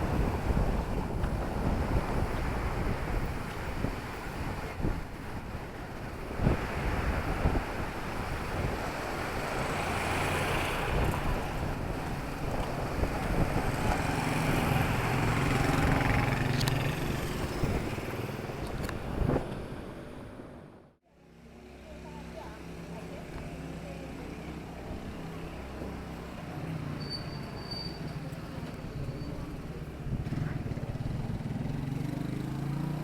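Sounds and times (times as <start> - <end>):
outdoor street noise: 0.0 - 33.0
vehicle engine passing: 12.8 - 18.5, 29.4 - 33.0.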